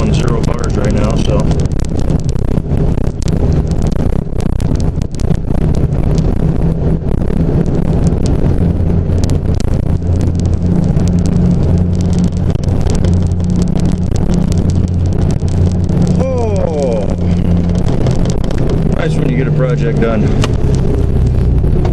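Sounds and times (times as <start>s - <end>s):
car engine running: 0.0s - 21.9s
crackling noise: 0.0s - 21.9s.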